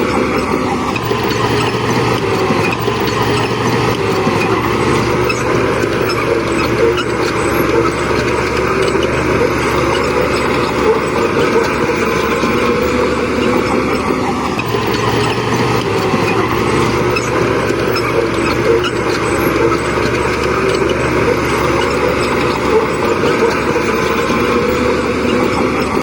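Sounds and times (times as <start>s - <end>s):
heavy machinery diesel engines: 0.0s - 26.0s.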